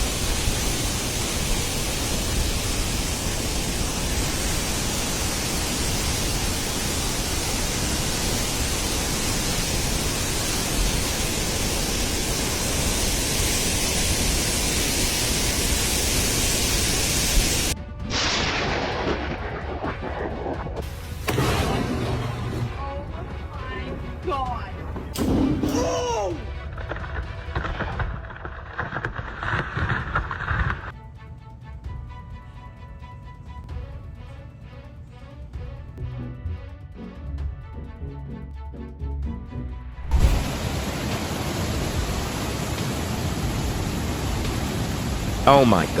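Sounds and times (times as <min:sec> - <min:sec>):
quieter rushing noise: 0:00.0 - 0:22.8, 0:40.0 - 0:46.0
loud rushing noise: 0:40.0 - 0:46.0.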